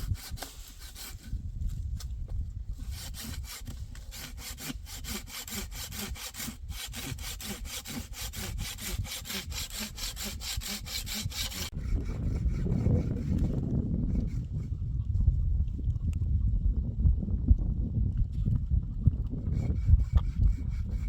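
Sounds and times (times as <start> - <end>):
hand saw cutting wood: 0.0 - 1.4, 2.8 - 14.6, 19.5 - 21.0.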